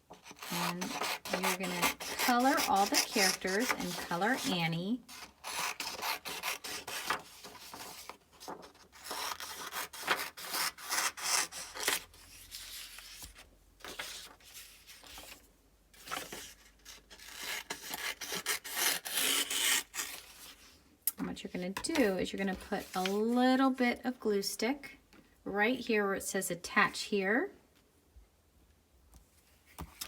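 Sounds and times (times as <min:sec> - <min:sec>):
coloring scribbling on paper: 0:00.2 - 0:07.5.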